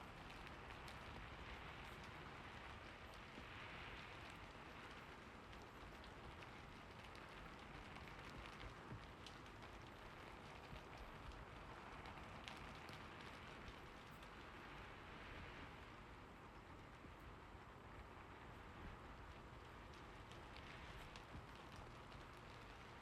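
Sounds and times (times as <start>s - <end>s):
faint rain hiss: 0.0s - 23.0s
raindrops ticking: 0.0s - 23.0s.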